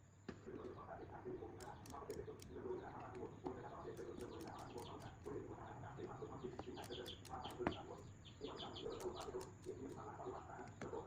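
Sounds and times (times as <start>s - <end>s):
birds calling: 0.4s - 11.0s
small clicks: 1.5s - 3.2s, 3.9s - 5.4s, 6.6s - 8.1s, 8.9s - 10.9s.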